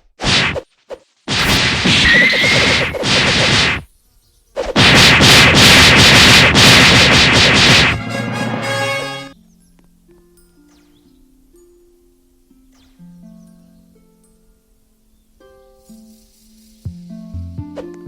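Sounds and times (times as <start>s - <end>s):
loud bursts of noise: 1.3s - 3.9s, 4.7s - 9.4s.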